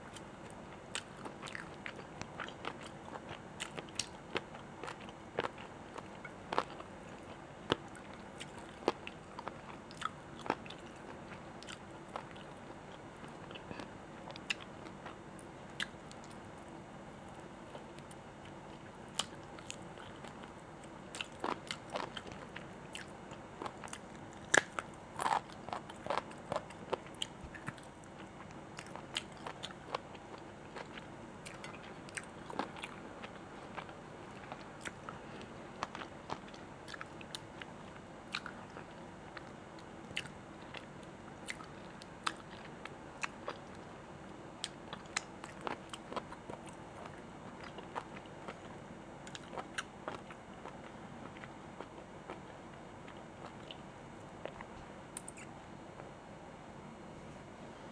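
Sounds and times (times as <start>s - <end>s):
chewing and biting food: 0.9s - 15.2s, 21.1s - 35.2s, 35.8s - 43.8s, 44.6s - 52.4s.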